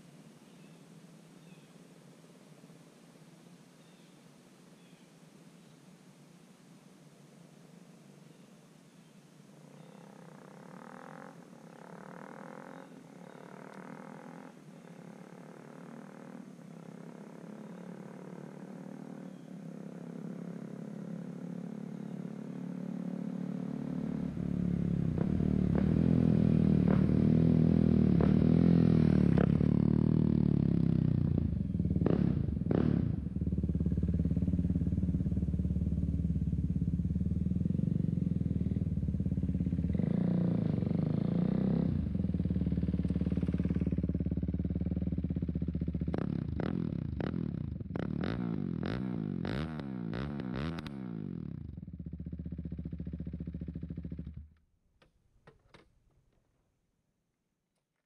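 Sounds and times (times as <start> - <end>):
motorcycle engine running: 9.8 - 54.6.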